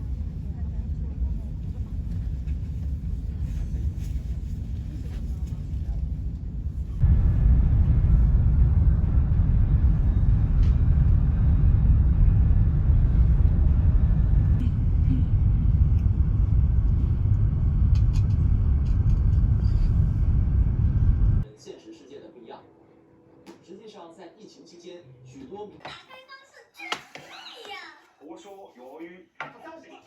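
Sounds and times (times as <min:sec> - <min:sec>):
loud low rumble: 0:00.0 - 0:21.5.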